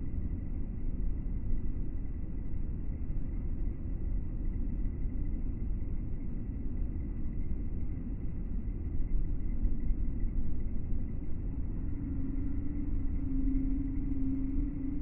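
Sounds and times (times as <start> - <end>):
steady tone: 11.0 - 15.0.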